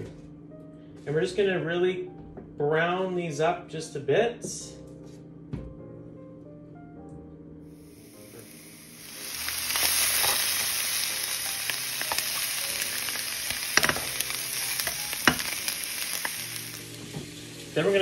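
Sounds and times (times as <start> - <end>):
meat sizzling in a frying pan: 7.8 - 18.0
metal utensil clicking on pan: 13.8 - 14.2.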